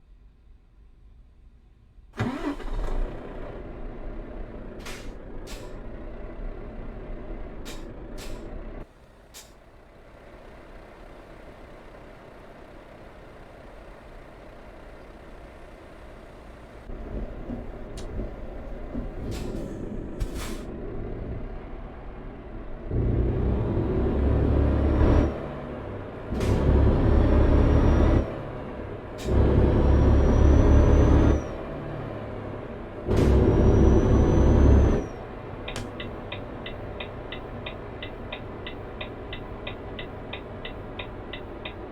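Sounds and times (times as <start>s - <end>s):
truck engine revving: 2.2s - 8.8s, 16.8s - 41.9s
diesel truck engine idling: 2.2s - 23.2s
air brake hisses: 9.3s - 9.6s, 19.2s - 20.7s.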